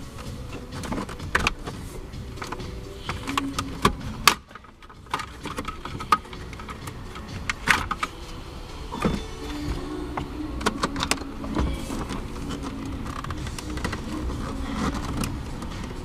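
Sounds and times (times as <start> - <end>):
tools and parts clattering: 0.0 - 16.0.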